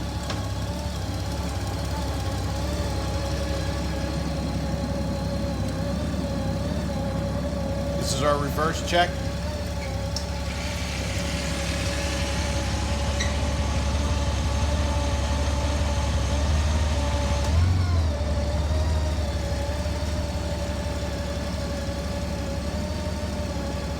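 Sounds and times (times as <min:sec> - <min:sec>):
motorcycle engine idling: 0:00.0 - 0:23.9
steady whine: 0:07.1 - 0:09.8.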